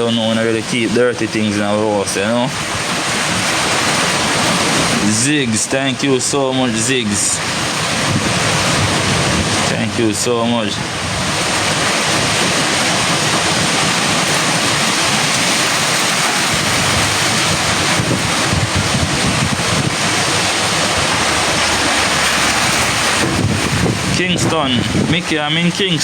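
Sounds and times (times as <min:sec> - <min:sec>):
heavy rain: 0:00.0 - 0:26.0
hurricane wind: 0:00.0 - 0:26.0.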